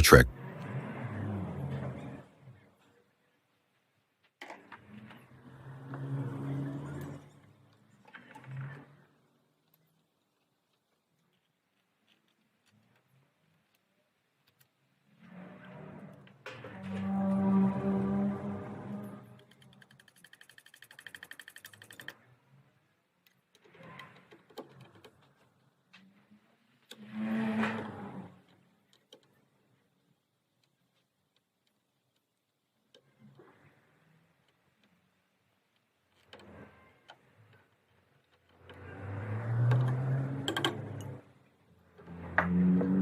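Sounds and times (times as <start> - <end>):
rapid mechanical clicking: 19.6 - 22.2.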